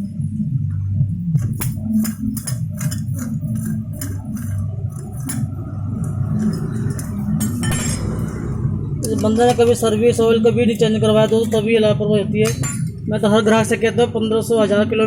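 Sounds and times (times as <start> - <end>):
steady low hum: 0.0 - 15.0
metal scrape: 1.4 - 11.7
metal tools clinking on metal: 1.4 - 11.7, 12.4 - 13.0.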